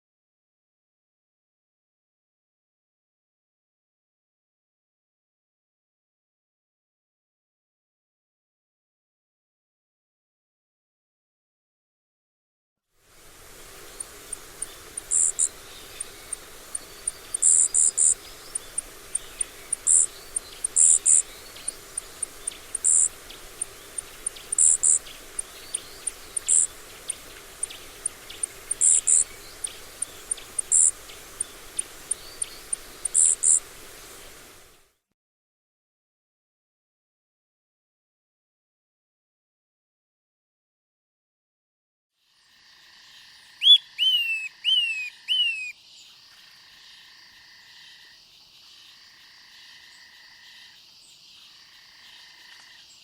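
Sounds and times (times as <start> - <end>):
faint steady hiss: 12.9 - 35.1, 42.3 - 53.0
bird high thin ticks: 13.2 - 34.8
bird short chirps: 13.9 - 33.8, 43.6 - 45.7.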